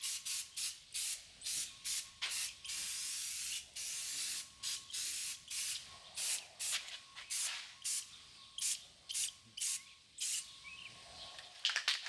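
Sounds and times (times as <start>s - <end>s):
spray paint can hissing: 0.0s - 10.5s.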